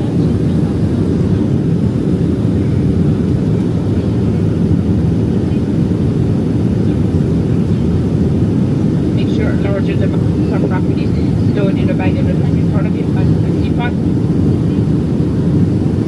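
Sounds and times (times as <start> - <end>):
aircraft cabin engine rumble: 0.0 - 16.0.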